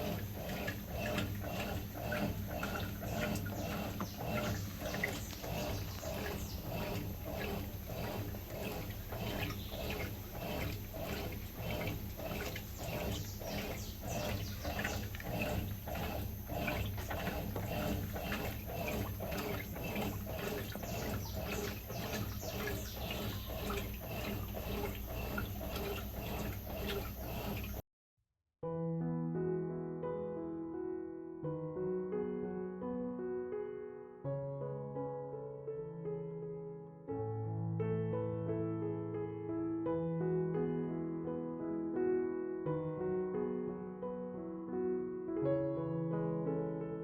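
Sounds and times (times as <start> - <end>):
washing machine motor hum: 0.0 - 27.8
water sloshing in washing machine: 0.0 - 27.8.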